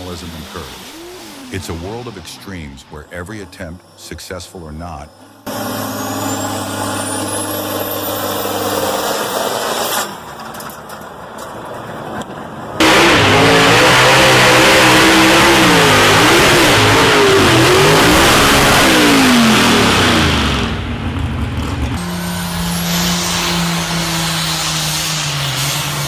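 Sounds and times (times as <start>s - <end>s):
steady low engine note: 0.0s - 8.6s, 12.8s - 24.4s
tractor engine running hard: 5.4s - 9.8s, 10.4s - 24.2s.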